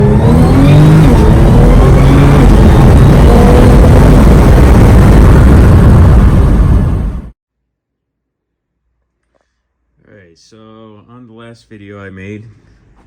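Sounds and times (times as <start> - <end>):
engine running with revs dropping: 0.0 - 7.3.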